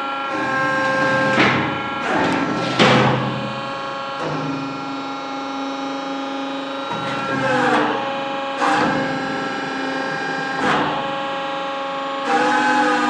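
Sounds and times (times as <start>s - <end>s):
hydraulic machine whine: 0.0s - 13.0s
machine clunks: 0.3s - 5.6s, 6.6s - 11.4s.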